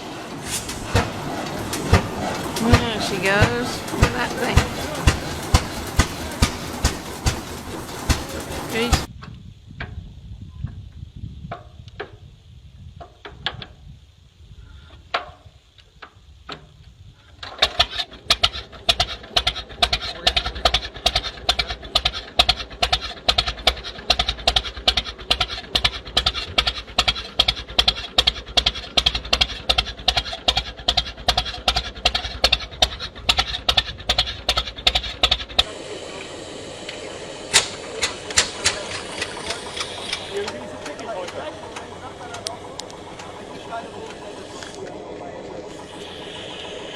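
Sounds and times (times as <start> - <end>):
tractor engine exhaust pulses: 0.0 - 46.9
scattered knocks: 0.7 - 9.1.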